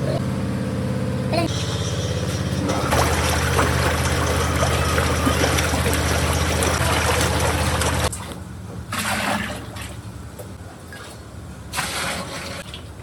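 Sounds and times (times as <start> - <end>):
machine motor humming: 1.5 - 8.1.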